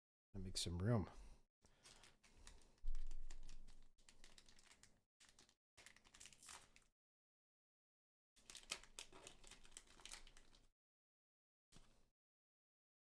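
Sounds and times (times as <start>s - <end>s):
trading cards rustling and clicking: 1.7s - 6.8s, 8.4s - 10.7s.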